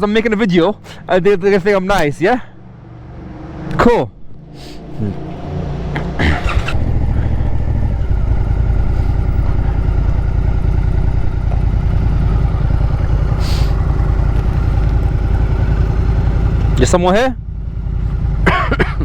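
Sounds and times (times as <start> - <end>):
motorcycle engine idling: 6.0 - 19.0.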